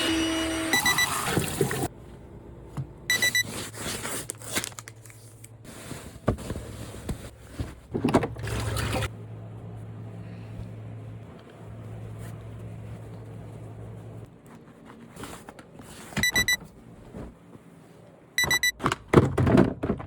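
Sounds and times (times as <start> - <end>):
electronic appliance beeps: 0.0 - 1.9, 3.1 - 3.6, 16.2 - 16.6, 18.4 - 18.8
water running: 0.8 - 1.9.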